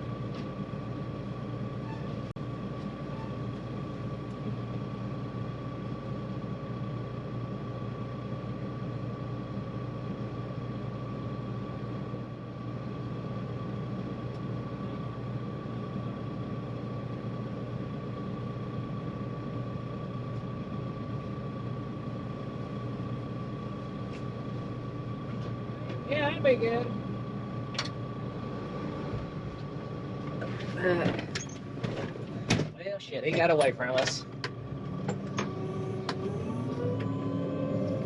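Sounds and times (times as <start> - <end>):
heavy vehicle engine running: 0.0 - 38.0
high engine whine: 0.0 - 38.0.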